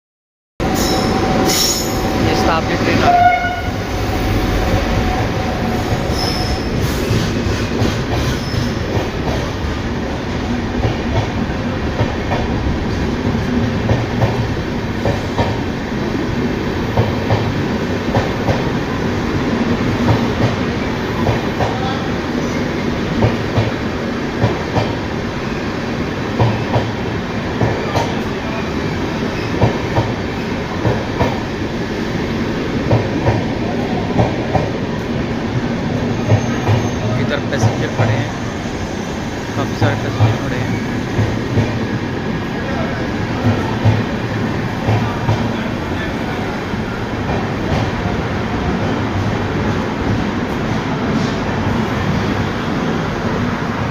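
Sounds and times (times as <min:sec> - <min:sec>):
train rumbling: 0:00.6 - 0:53.9
train wheels clacking over rail joints: 0:44.8 - 0:45.6.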